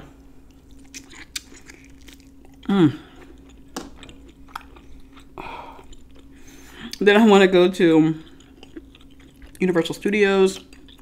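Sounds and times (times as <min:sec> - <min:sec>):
wet chewing clicks: 0:00.5 - 0:07.0, 0:08.2 - 0:11.0
woman humming mmm: 0:02.6 - 0:03.2.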